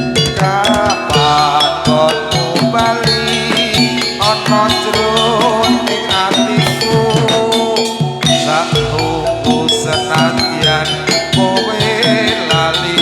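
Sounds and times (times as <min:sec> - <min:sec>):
drum strokes: 0:00.0 - 0:13.0
struck metallophones: 0:00.0 - 0:13.0
wavering melodic line: 0:00.0 - 0:13.0.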